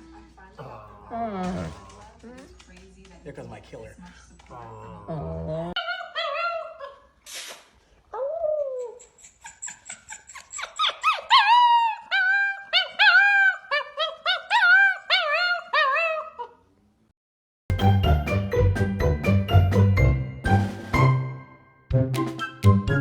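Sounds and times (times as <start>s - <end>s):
dog whining and yipping: 8.2s - 16.5s
music: 17.7s - 23.0s.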